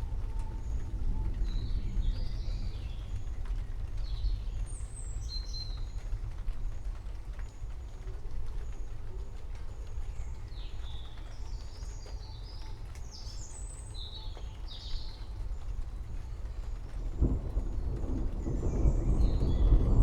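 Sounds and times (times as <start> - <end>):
deep thunder rumble: 0.0 - 6.7, 15.3 - 20.0
rain: 0.0 - 20.0.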